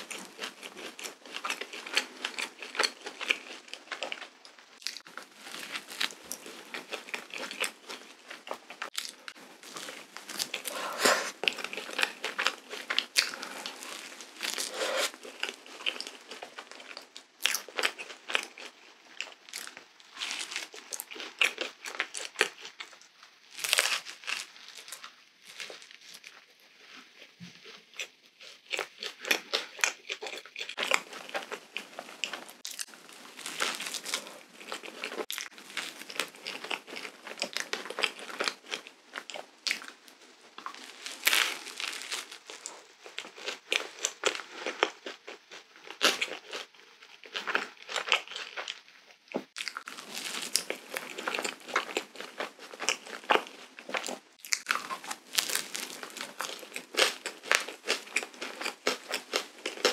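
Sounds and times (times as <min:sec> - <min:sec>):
crisp bites and chewing: 0:00.0 - 0:26.5, 0:27.2 - 0:59.9
wet sticky mouth sounds: 0:10.4 - 0:11.9.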